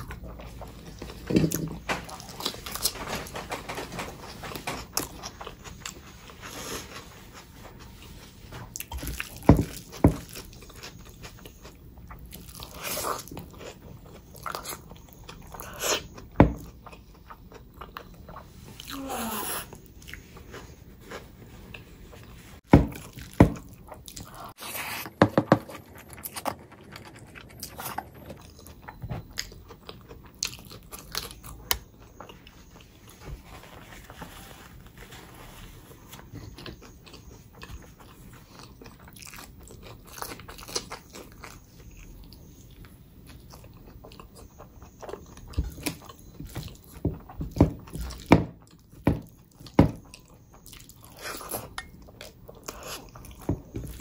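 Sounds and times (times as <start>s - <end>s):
person chewing and crunching: 8.7s - 25.0s, 25.7s - 33.2s, 36.0s - 54.0s.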